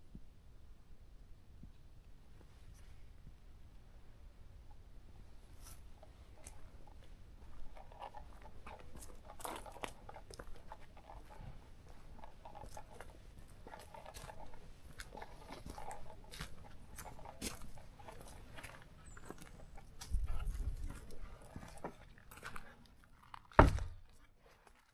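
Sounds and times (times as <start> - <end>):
footsteps crunching on forest floor: 11.2 - 24.9.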